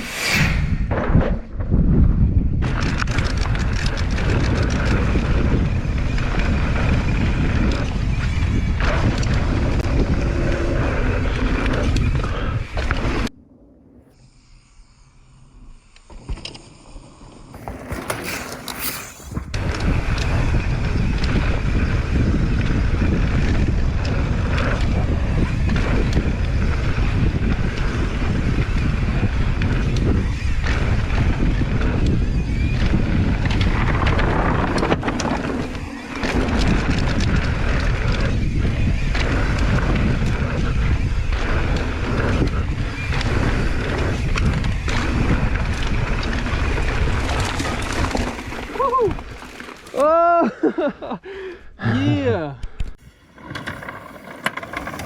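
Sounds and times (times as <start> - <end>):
wind buffeting microphone: 0.0 - 13.3, 19.3 - 49.4
tyres rumbling on dirt: 17.6 - 27.1, 32.7 - 50.0, 53.0 - 55.0.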